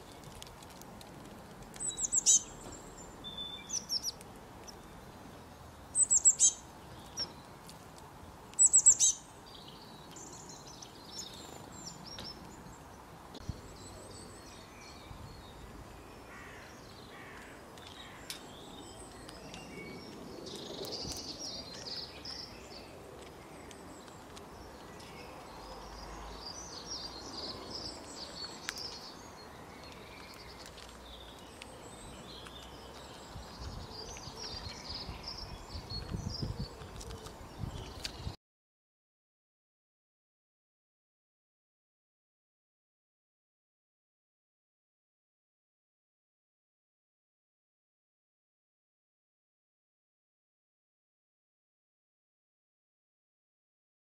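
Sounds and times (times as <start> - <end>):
birds twittering: 1.8 - 7.6, 8.6 - 38.4.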